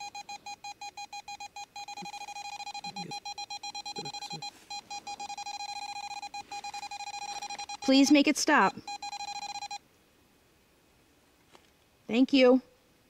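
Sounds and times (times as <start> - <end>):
meter beeping rapidly: 0.0 - 9.8.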